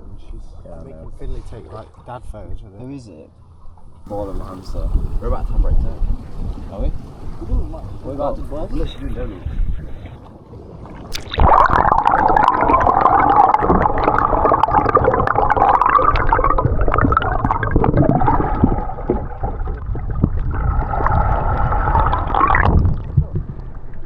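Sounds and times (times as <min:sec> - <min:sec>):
deep rumble: 0:04.0 - 0:10.2, 0:11.1 - 0:24.0
water gurgling underwater: 0:04.1 - 0:24.0
warbling tones: 0:11.1 - 0:23.7.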